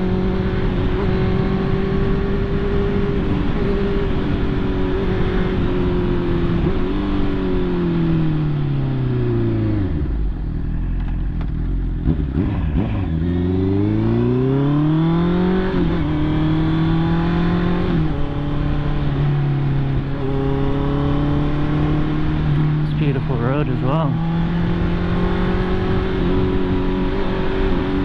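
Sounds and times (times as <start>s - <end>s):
motorcycle engine: 0.0s - 28.0s.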